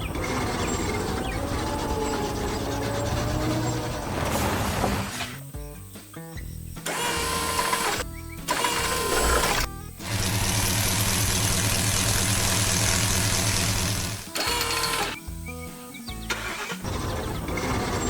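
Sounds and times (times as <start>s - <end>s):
engine-like drone: 0.0s - 5.3s, 6.9s - 15.2s, 16.3s - 18.0s
cartoon background music: 14.3s - 18.0s.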